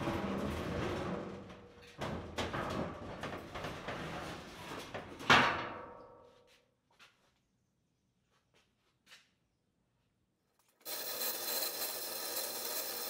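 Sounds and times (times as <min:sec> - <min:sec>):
heavy metal scraping and grinding: 0:00.0 - 0:05.3.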